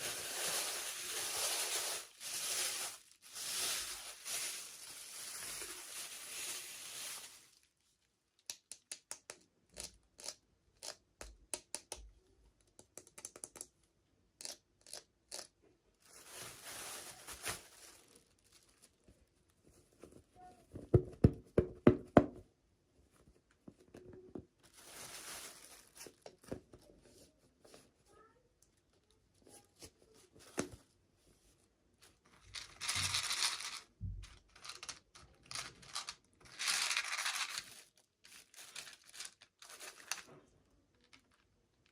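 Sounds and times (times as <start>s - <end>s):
wrapper tearing and crinkling: 0.0s - 7.7s, 16.1s - 18.9s, 24.7s - 26.2s, 32.4s - 33.8s, 34.4s - 40.3s.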